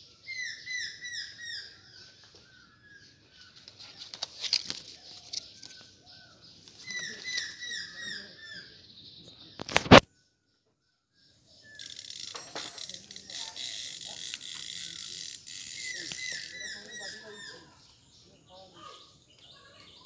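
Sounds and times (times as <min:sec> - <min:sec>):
small clicks and rustles: 0:03.4 - 0:05.9.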